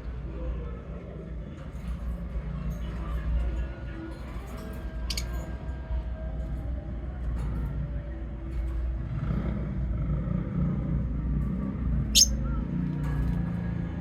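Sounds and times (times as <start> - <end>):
shrill chirp: 5.0 - 5.4, 12.1 - 12.5
lovebirds chirping: 12.2 - 12.4.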